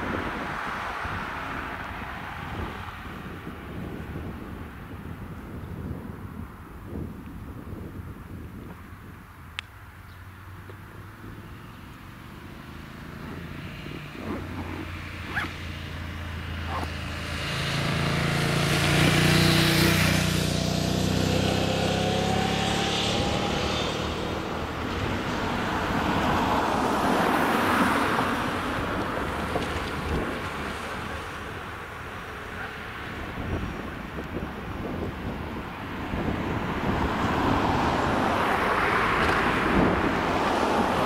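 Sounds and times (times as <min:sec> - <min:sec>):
vehicle engine passing: 0:10.9 - 0:33.8.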